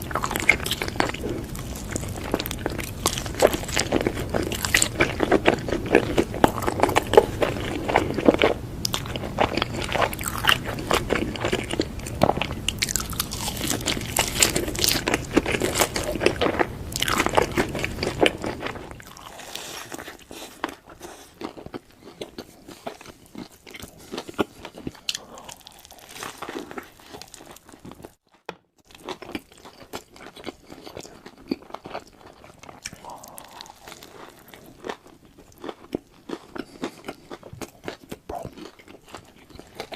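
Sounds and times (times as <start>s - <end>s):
crunchy bites and chewing: 0.0s - 28.2s, 28.9s - 39.9s.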